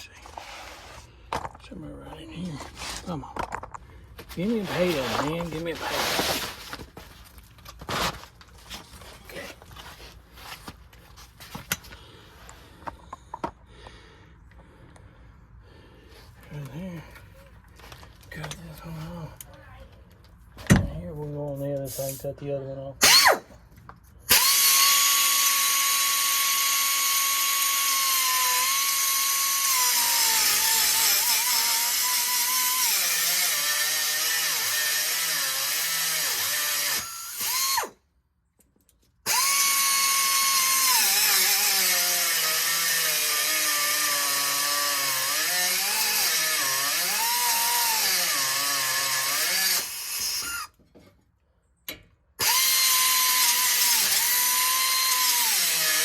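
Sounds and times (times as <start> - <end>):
power cutting tool cutting metal: 24.3 - 38.0, 39.3 - 50.7, 52.4 - 56.0.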